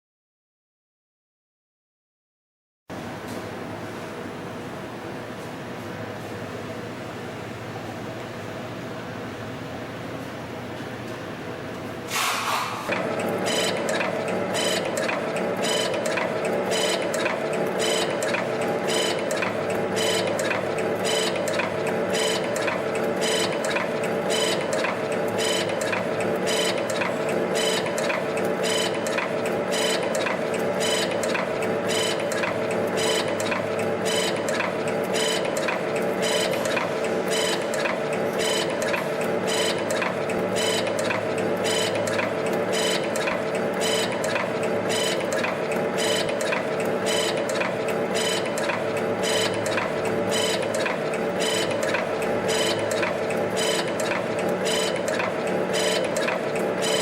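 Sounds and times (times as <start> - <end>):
motor and servo hum: 12.1 - 57.0
machine forming clicks: 12.9 - 57.0.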